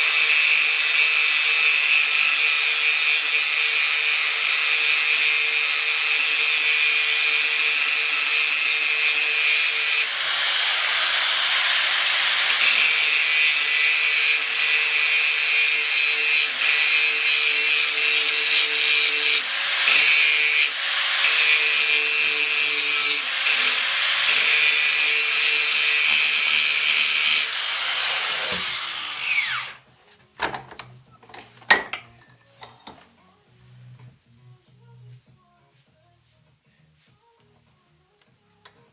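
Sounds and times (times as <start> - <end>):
power tool grinding steel: 0.0 - 29.8.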